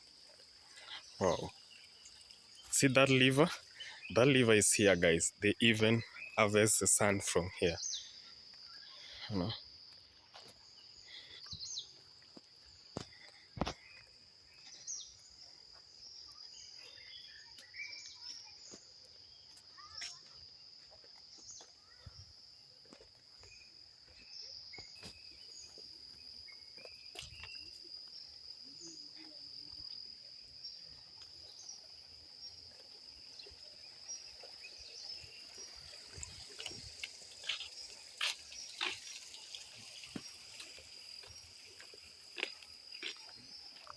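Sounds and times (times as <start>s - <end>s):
crickets chirping: 0.0s - 43.9s.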